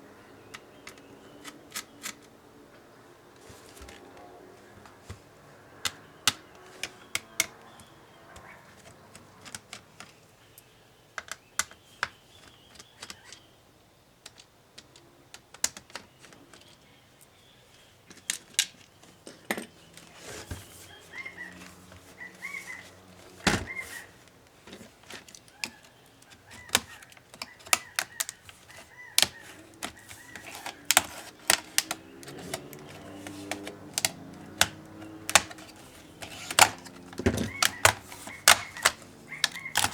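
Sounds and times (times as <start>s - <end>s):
plastic and metal clicks: 0.4s - 2.4s, 4.8s - 13.5s, 14.2s - 16.9s, 17.7s - 39.9s.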